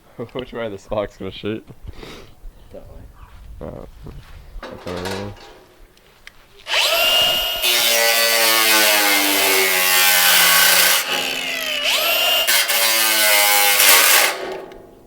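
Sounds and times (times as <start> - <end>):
angle grinder cutting metal: 6.7 - 14.8.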